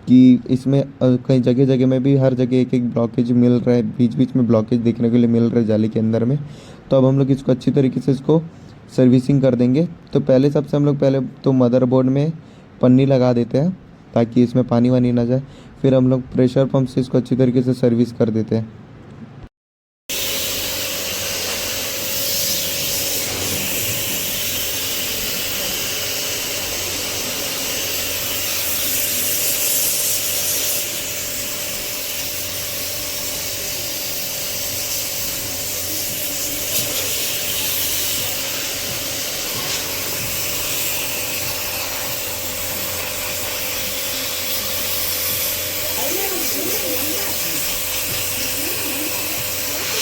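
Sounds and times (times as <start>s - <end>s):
pressure-washer motor whine: 20.1s - 50.0s
water spraying: 20.1s - 50.0s.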